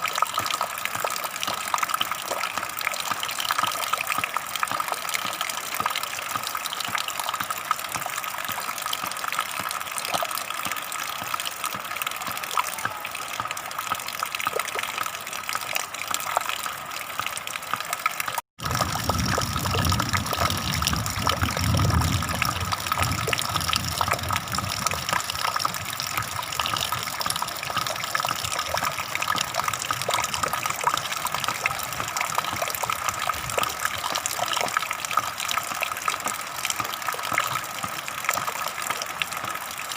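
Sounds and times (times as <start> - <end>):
water gushing: 0.0 - 39.9.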